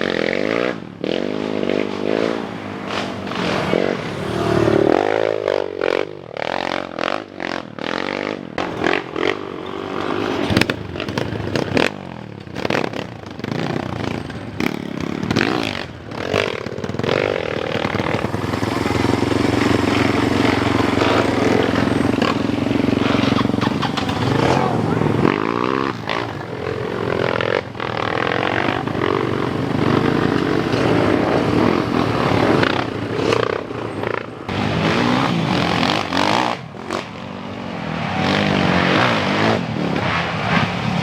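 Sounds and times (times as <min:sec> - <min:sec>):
motocross bike engines revving: 0:00.0 - 0:41.0.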